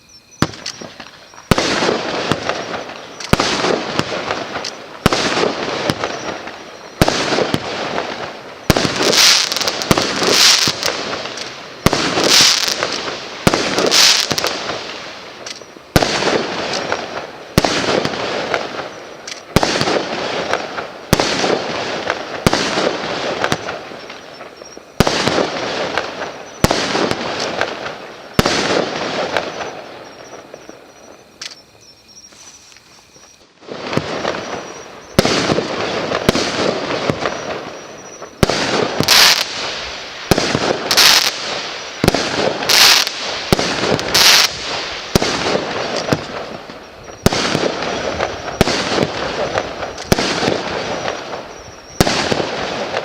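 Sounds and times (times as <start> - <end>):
firework bangs with crackle: 0.4 - 30.9, 33.6 - 53.0.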